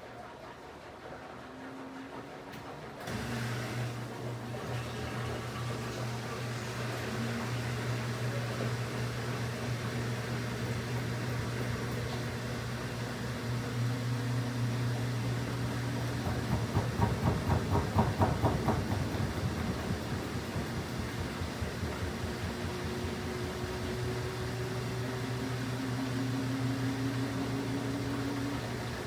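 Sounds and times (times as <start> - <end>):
rhythmic thumping and sloshing: 0.0 - 7.6, 14.7 - 29.0
washing machine motor hum: 0.0 - 29.0.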